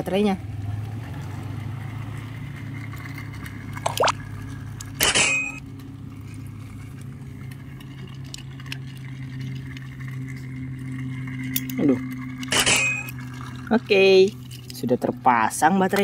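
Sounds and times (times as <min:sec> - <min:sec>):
steady low hum: 0:02.5 - 0:15.9.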